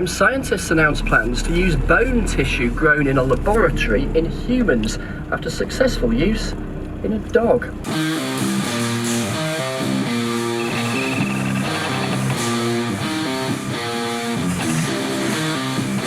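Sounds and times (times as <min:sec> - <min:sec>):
instrumental rock music: 0:07.7 - 0:16.0.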